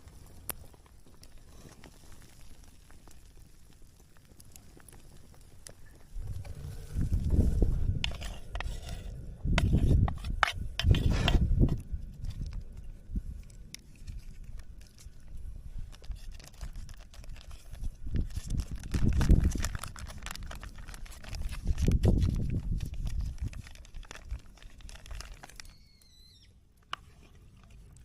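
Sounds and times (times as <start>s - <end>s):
wood fire crackling and popping: 0.0s - 26.1s
low rumbles: 4.6s - 23.2s.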